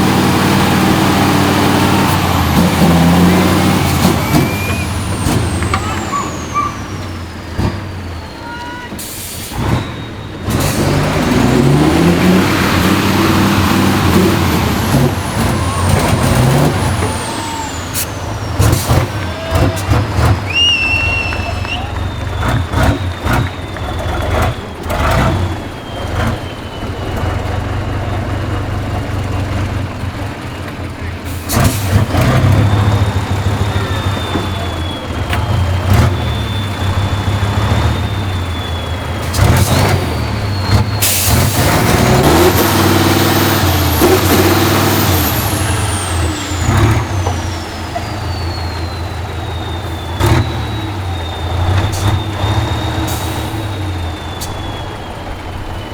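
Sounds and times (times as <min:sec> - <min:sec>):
diesel truck engine revving: 0:00.0 - 0:55.9
air brake hisses: 0:08.6 - 0:11.0, 0:14.7 - 0:19.0, 0:38.3 - 0:41.8.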